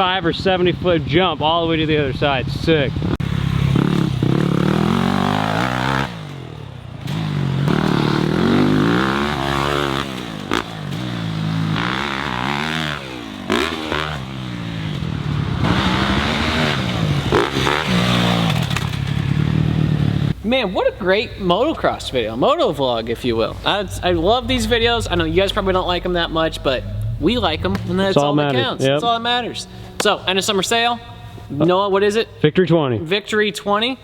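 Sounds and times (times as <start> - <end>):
dirt bike engine revving: 1.9 - 22.4, 23.0 - 29.0.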